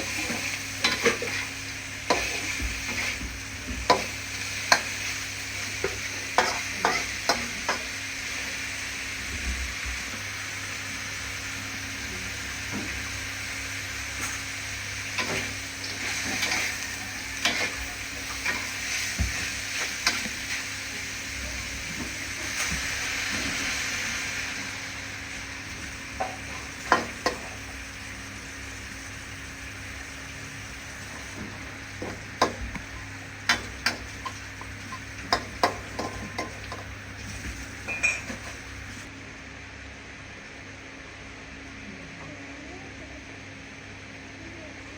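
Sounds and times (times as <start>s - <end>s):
meat sizzling in a hot pan: 0.0s - 39.1s
spatula clinking on metal: 37.9s - 38.5s.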